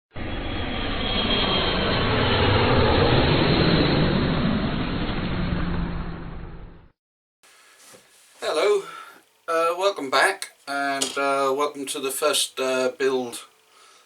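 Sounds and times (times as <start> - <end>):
aircraft engine flying by: 0.2 - 7.0.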